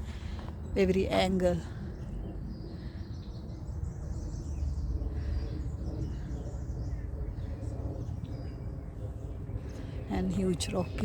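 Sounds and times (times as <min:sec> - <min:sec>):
faint birds chirping: 0:00.0 - 0:11.0
wind rumble on microphone: 0:00.0 - 0:11.0.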